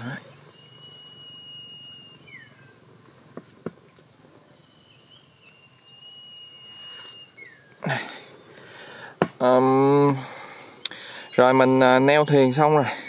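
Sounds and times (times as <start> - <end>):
bird whistled call: 0.0 - 3.0, 4.5 - 8.7
rustling thump: 9.2 - 9.4.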